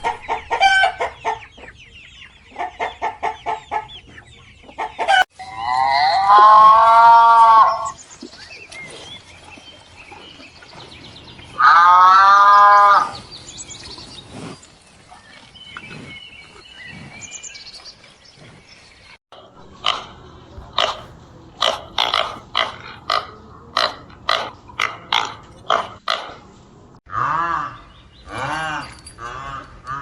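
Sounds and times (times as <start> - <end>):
farm animal calling: 10.8 - 14.2, 19.4 - 28.8.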